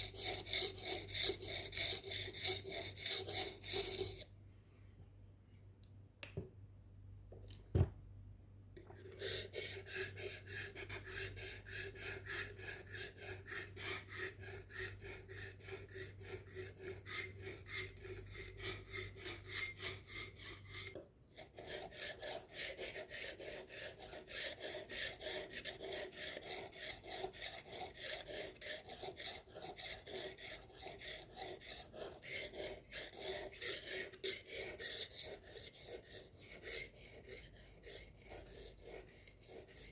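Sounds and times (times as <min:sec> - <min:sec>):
knife sharpening strokes: 0:00.0 - 0:04.3.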